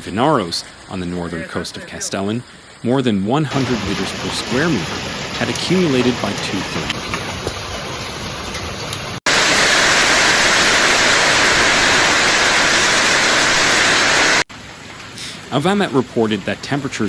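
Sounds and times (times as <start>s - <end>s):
rushing floodwater: 3.3s - 17.0s.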